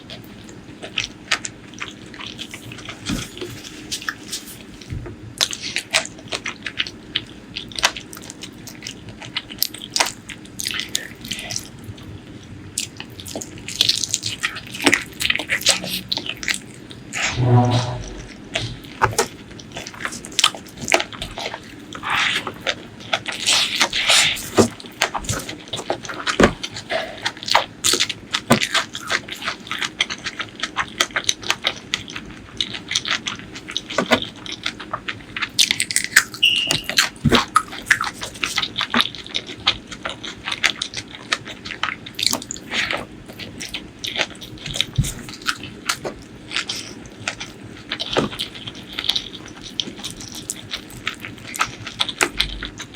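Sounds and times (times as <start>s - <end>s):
wet chewing and biting: 19.9s - 52.9s.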